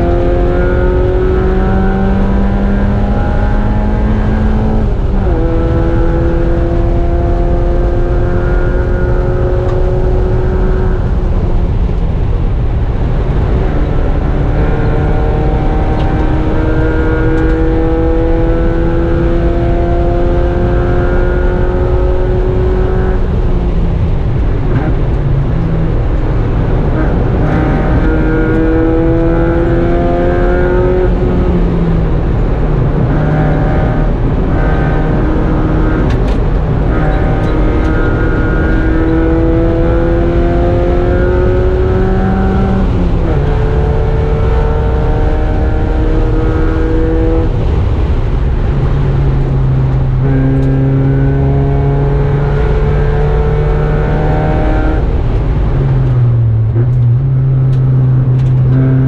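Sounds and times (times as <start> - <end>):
car engine revving: 0.0 - 59.0
road and wind noise: 0.0 - 59.0.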